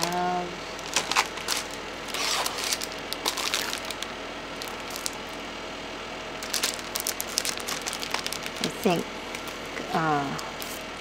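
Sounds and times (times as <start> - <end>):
paper and cardboard rustling: 0.8 - 4.0.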